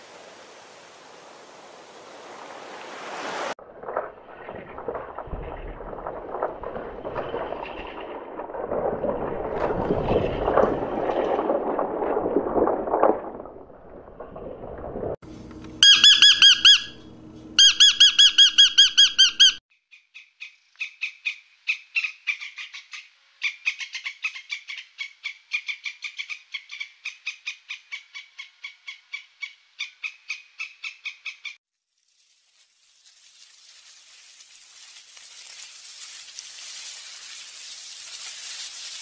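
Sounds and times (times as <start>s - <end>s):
parrot squawking: 15.8s - 17.0s, 17.6s - 19.6s.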